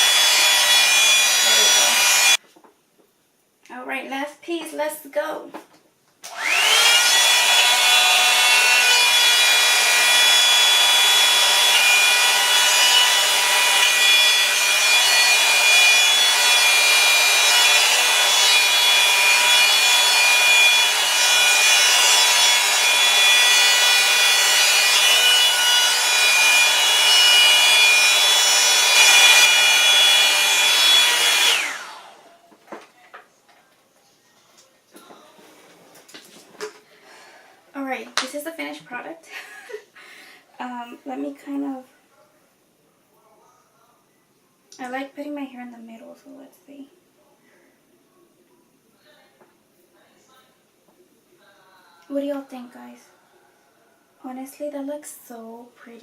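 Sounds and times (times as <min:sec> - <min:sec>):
hair dryer brush running: 0:00.0 - 0:02.4, 0:06.2 - 0:32.4.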